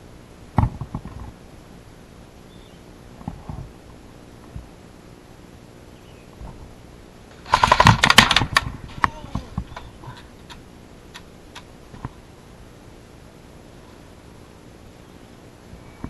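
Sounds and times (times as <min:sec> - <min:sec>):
airsoft gun firing clicks: 0:07.4 - 0:09.1.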